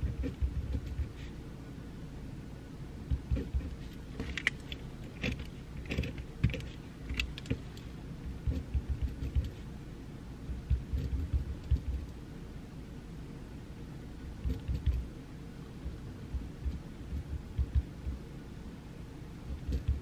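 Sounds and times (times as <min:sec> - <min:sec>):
soft low thumps: 0:00.0 - 0:01.2, 0:03.0 - 0:03.8, 0:07.5 - 0:09.6, 0:10.4 - 0:12.1, 0:14.3 - 0:15.1, 0:15.8 - 0:18.3, 0:19.5 - 0:20.0
steady background hiss: 0:00.0 - 0:20.0.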